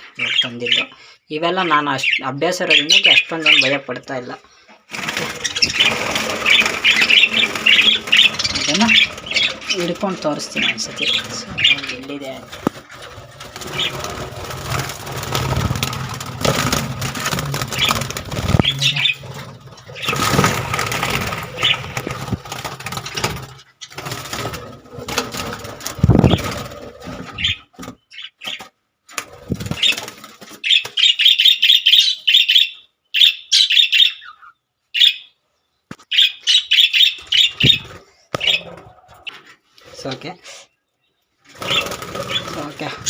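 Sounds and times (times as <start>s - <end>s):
bird harsh rapid chirps: 4.9s - 24.6s, 25.4s - 28.6s, 29.4s - 35.4s, 36.0s - 39.3s
bird wings flapping: 4.9s - 28.0s, 29.1s - 30.9s, 41.5s - 43.0s.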